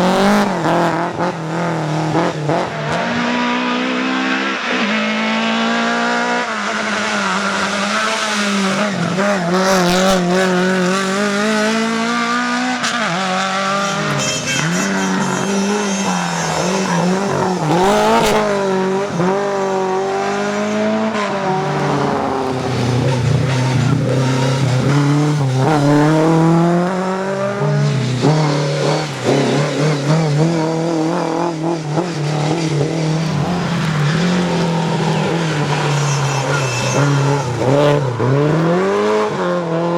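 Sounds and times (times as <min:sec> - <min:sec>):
rally car engines revving: 0:00.0 - 0:39.9
tyre squeal: 0:06.6 - 0:20.7, 0:21.4 - 0:39.2.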